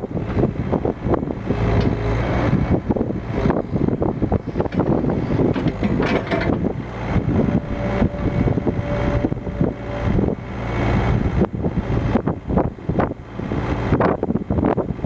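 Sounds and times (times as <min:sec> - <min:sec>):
excavator diesel engine running: 0:00.0 - 0:15.0
steady whine: 0:00.0 - 0:15.0
coupler clanking and rattling: 0:04.6 - 0:06.8.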